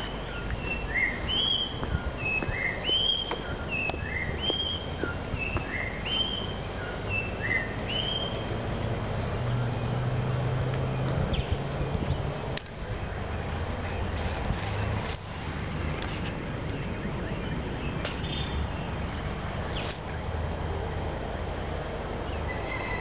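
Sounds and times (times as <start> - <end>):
bird whistling song: 0.1 - 8.4.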